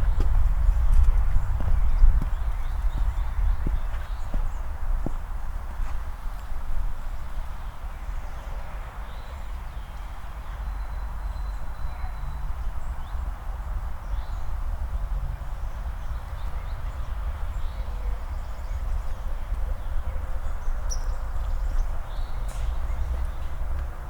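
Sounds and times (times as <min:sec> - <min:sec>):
steady low rumble: 0:00.0 - 0:05.8
boot footsteps on pavement: 0:00.0 - 0:06.1.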